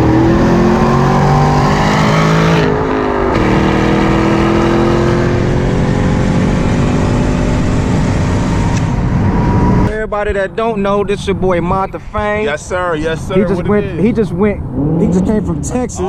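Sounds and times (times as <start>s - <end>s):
car engine revving: 0.0s - 9.9s, 13.2s - 16.0s.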